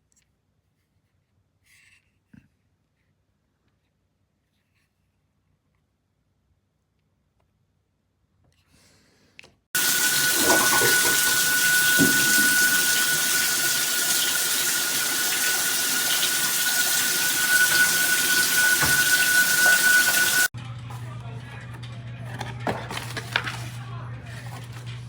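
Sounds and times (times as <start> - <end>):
shower head spraying water: 9.8 - 20.5
thin steady whistle: 9.8 - 20.5.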